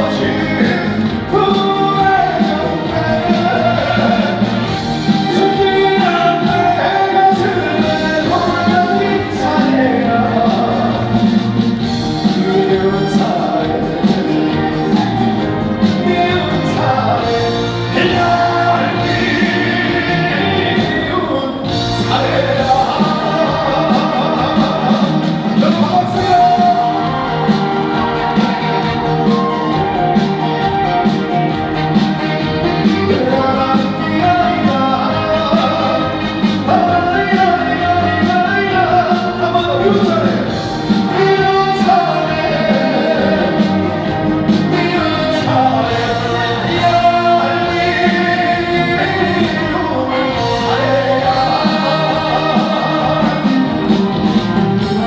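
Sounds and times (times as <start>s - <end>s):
band playing over sound system: 0.0s - 55.0s
person singing: 0.0s - 55.0s.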